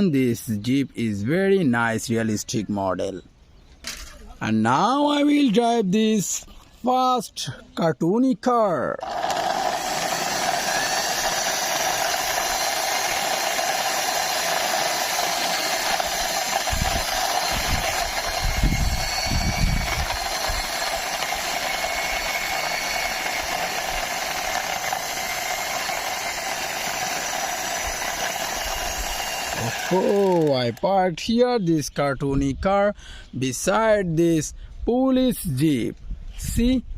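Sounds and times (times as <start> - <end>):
toy car wheels whirring: 9.0 - 30.9.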